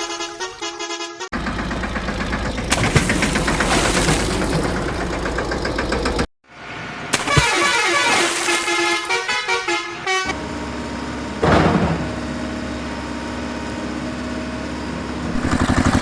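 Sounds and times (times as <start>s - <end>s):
vehicle horn honking: 0.0s - 1.4s, 7.2s - 10.4s
heavy vehicle engine running: 1.4s - 6.3s, 10.3s - 16.0s.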